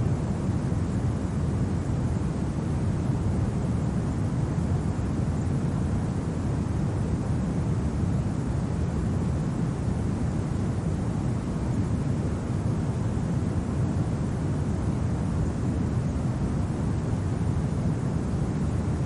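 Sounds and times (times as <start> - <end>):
low rushing winter wind: 0.0 - 19.0.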